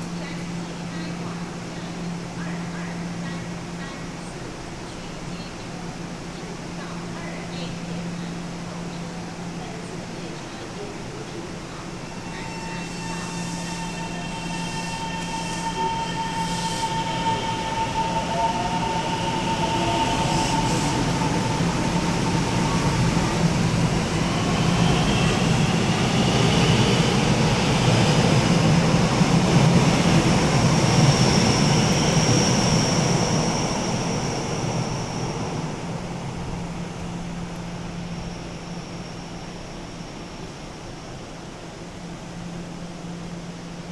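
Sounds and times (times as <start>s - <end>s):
high thin squeal: 12.0s - 22.0s.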